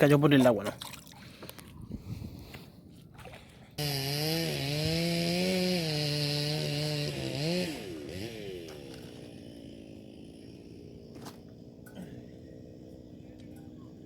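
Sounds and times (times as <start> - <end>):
small engine at high revs: 3.8 - 11.7.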